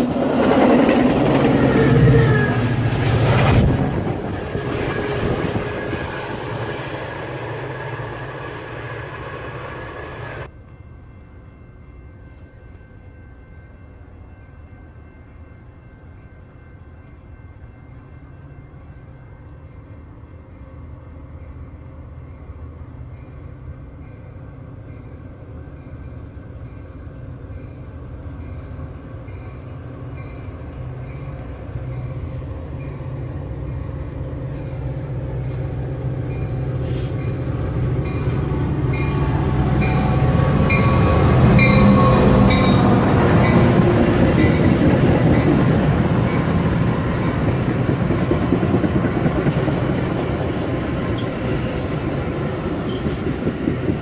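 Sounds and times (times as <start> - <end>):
train wheels clattering on rails: 0.0 - 8.2, 36.3 - 54.0
diesel train rumble: 0.0 - 10.8, 16.9 - 54.0.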